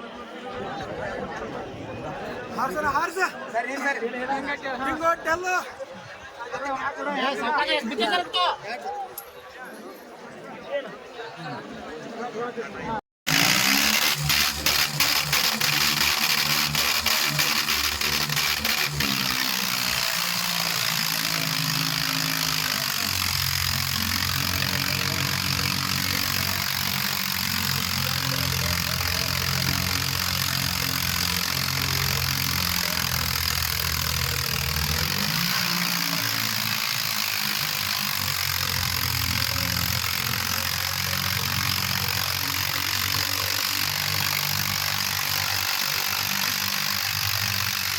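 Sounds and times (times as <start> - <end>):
diesel tractor engine running: 13.3 - 47.9
sharp clicks: 13.3 - 47.9.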